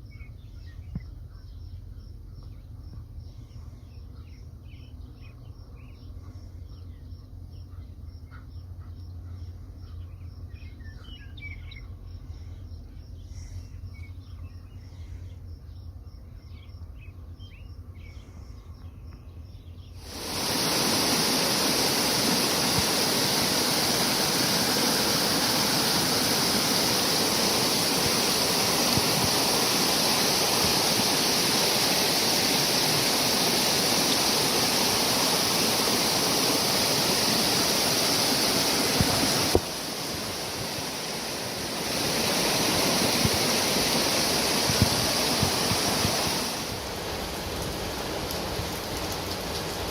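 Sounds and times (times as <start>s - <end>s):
loud rush of water: 20.0s - 49.9s.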